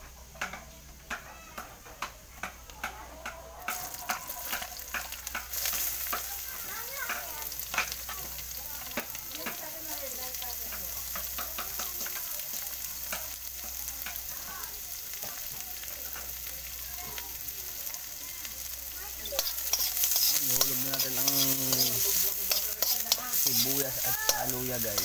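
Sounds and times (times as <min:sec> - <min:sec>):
food sizzling in hot oil: 0:00.1 - 0:25.0
spatula stirring and scraping: 0:19.1 - 0:25.0.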